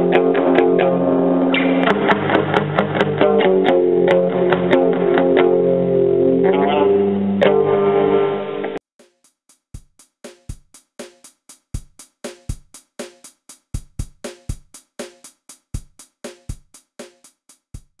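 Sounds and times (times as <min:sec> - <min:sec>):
drum machine beat: 0:08.9 - 0:18.0.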